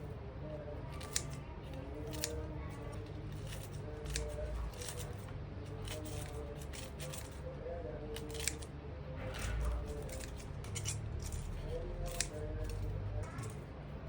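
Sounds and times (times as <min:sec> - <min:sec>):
scissors snipping through chicken: 0:02.0 - 0:05.0, 0:08.2 - 0:08.7, 0:09.6 - 0:13.6.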